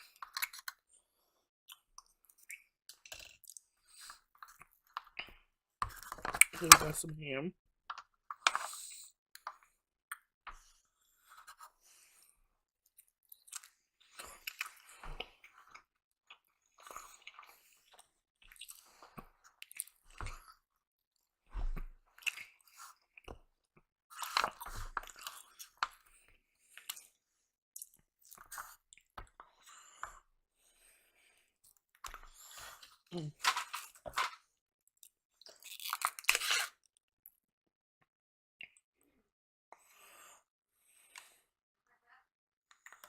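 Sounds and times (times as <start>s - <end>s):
chewing crunchy bites: 1.7s - 5.3s, 13.3s - 20.6s, 24.2s - 26.1s, 34.9s - 36.9s.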